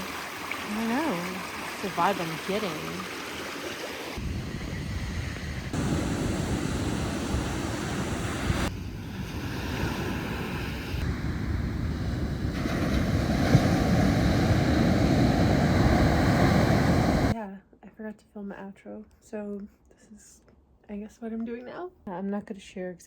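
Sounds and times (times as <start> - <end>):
ocean surf roar: 4.2 - 17.4
wind buffeting microphone: 4.2 - 17.4.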